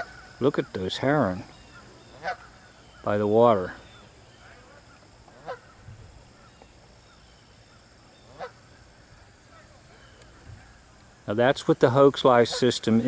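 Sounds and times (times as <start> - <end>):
goose honking: 0.0 - 0.3, 1.7 - 2.6, 4.4 - 5.8, 8.2 - 8.7, 12.3 - 12.9
faint geese calls: 0.0 - 13.0.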